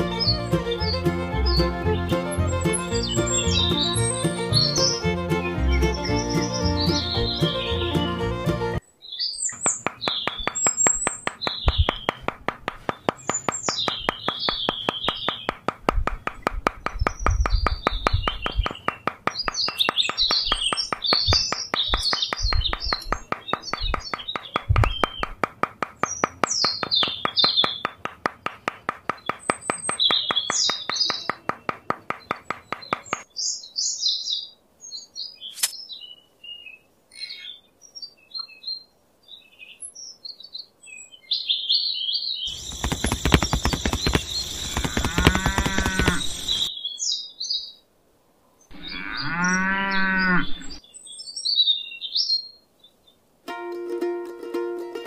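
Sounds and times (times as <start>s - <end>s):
small birds chirping: 0.0s - 47.9s, 48.6s - 53.2s
rapidly pulsing buzz: 42.5s - 46.7s.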